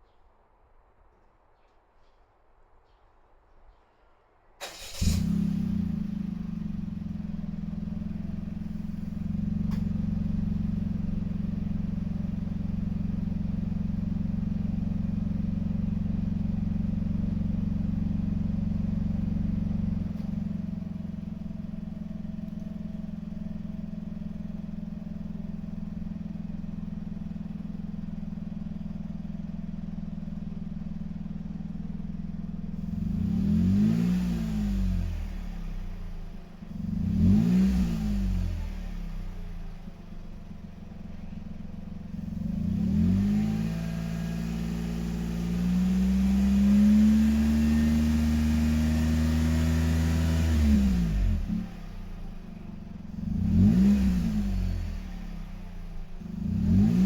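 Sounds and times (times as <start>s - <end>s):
engine revving: 4.6s - 7.1s, 32.8s - 39.6s, 42.2s - 52.4s, 53.1s - 57.0s
car engine idling: 4.7s - 34.0s, 38.4s - 46.6s, 51.0s - 57.0s.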